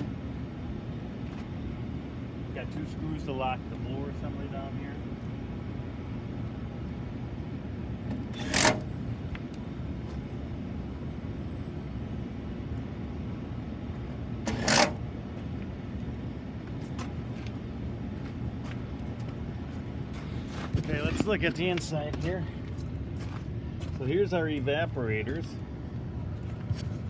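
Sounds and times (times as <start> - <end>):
steady low rumble: 0.0 - 27.0
power driver driving screws: 8.3 - 8.9, 14.5 - 15.0.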